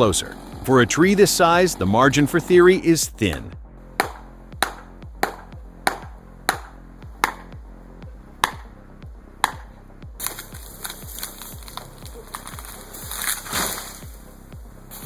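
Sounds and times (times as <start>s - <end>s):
background music: 0.0s - 15.0s
hammer striking metal wedges: 3.2s - 7.5s, 8.4s - 8.6s, 9.4s - 10.5s.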